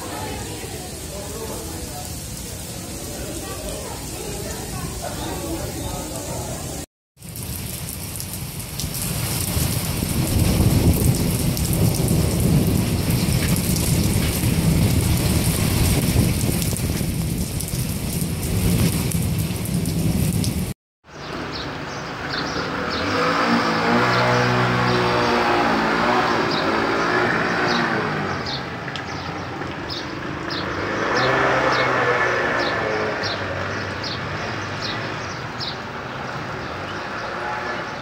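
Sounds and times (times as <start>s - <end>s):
heavy rain on standing water: 0.0s - 20.8s.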